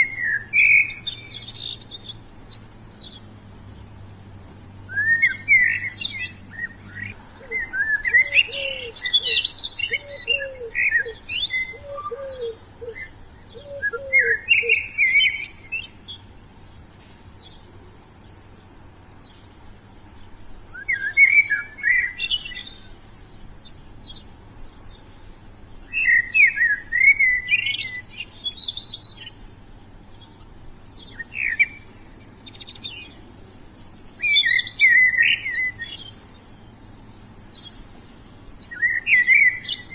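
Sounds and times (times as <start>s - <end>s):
songbird chirping and whistling: 0.0s - 3.7s, 4.4s - 18.5s, 19.2s - 39.9s.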